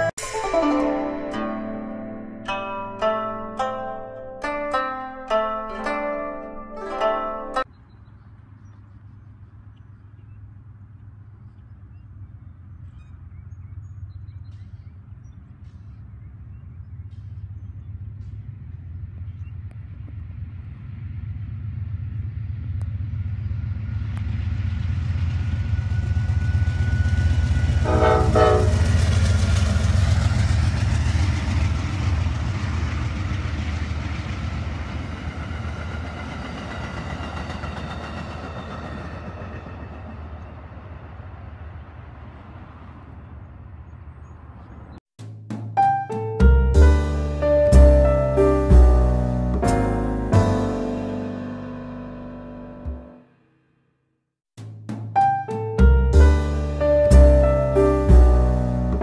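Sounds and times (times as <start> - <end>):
passenger train passing: 0.0 - 7.8, 12.1 - 45.0, 46.4 - 53.1, 55.8 - 59.0
train horn: 26.7 - 29.8.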